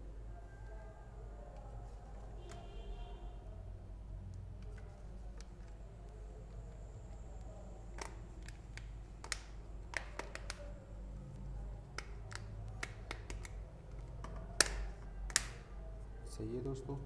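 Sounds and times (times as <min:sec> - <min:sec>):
smartphone clicks and taps: 0:07.9 - 0:10.7, 0:11.9 - 0:15.6.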